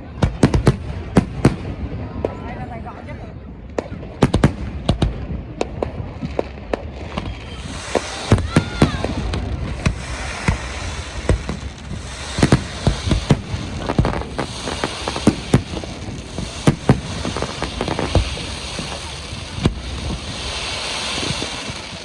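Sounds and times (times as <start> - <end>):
fireworks shells bursting: 9.8 - 21.9.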